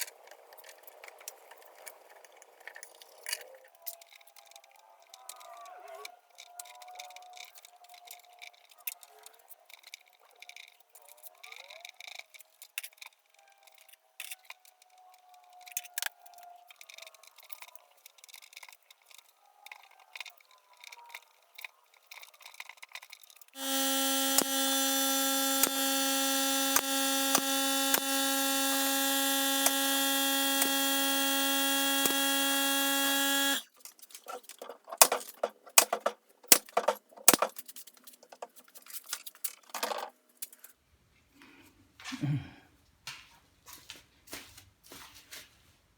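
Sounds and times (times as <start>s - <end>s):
power tool humming: 23.6s - 33.7s, 34.3s - 37.5s
workshop clicks and knocks: 34.2s - 38.6s.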